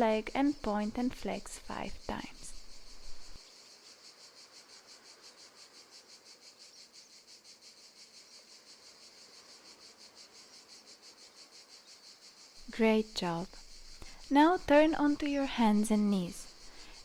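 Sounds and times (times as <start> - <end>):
cricket chirping: 0.0 - 17.0.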